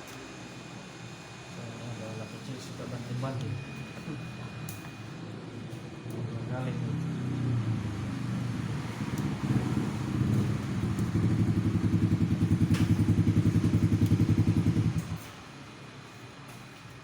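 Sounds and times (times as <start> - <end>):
motorcycle engine running: 6.8 - 15.4.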